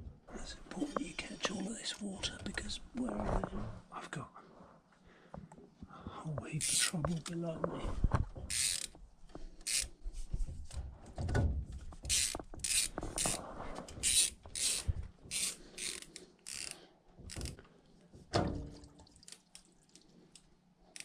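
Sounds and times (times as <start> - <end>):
hand ratchet clicking: 8.5 - 8.9, 9.6 - 9.9, 12.0 - 13.4, 14.0 - 17.6.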